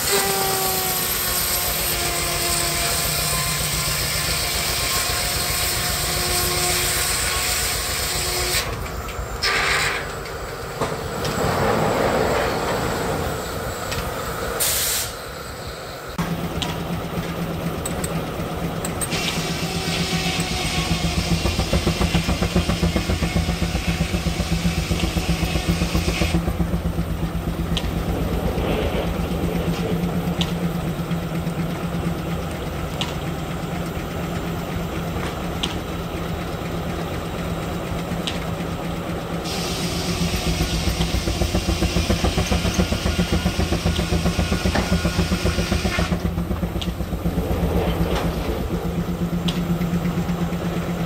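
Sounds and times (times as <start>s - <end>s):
steam hiss: 9.4s - 16.2s, 39.4s - 46.2s
steam engine exhaust beat: 16.1s - 51.0s.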